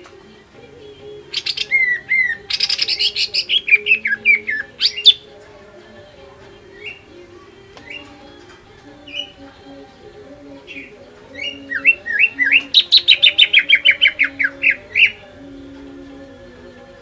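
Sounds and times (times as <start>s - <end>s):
bird singing chattering notes: 1.1s - 5.3s, 6.6s - 15.3s.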